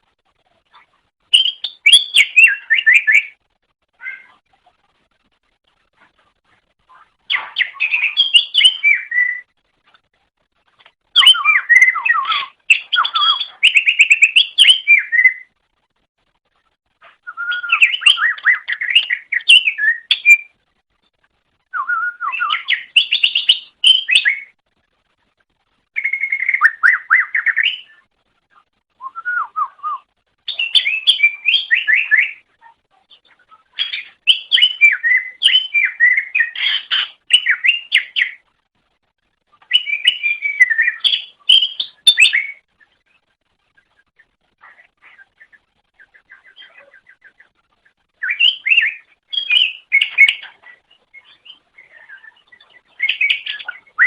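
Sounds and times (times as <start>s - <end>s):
bird warbling song: 0.5s - 3.4s, 4.0s - 4.7s, 6.1s - 9.5s, 10.7s - 15.6s, 17.0s - 24.6s, 26.0s - 38.4s, 39.5s - 54.0s.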